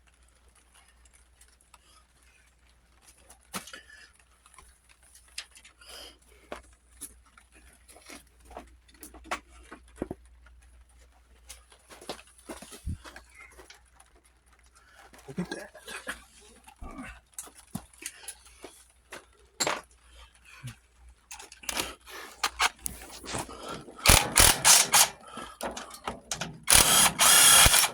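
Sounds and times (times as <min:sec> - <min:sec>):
hand tools tapping on metal: 0:21.3 - 0:27.9.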